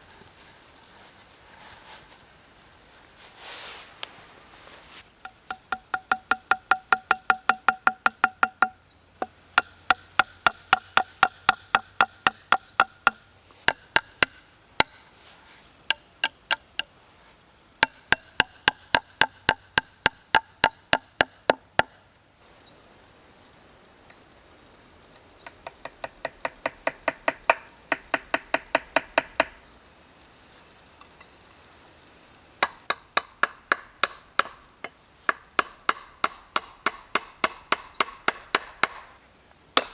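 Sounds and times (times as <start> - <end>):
tool striking wood rapidly: 5.2 - 15.0, 17.8 - 22.0, 25.7 - 29.6, 32.6 - 34.6, 35.3 - 39.1.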